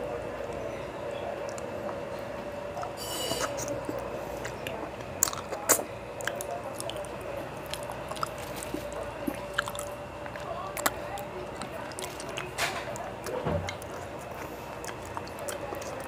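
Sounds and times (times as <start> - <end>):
wet chewing and sucking: 2.7 - 16.0.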